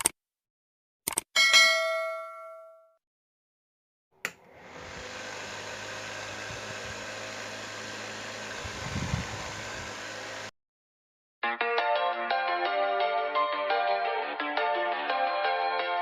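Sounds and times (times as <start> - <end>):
small fan motor whirring: 4.4 - 10.5.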